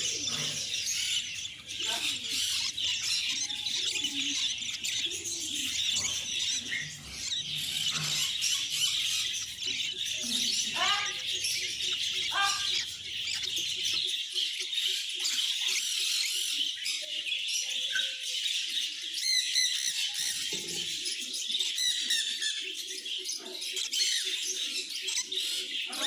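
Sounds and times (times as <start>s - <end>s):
bird squealing calls: 0.0s - 13.9s
small birds chirping: 0.0s - 26.0s.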